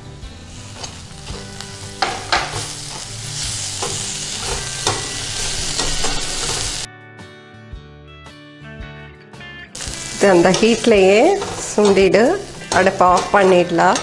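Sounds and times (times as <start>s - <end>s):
onions sizzling in oil: 0.3s - 6.9s, 9.8s - 14.0s
metal spoon stirring and scraping: 10.0s - 14.0s.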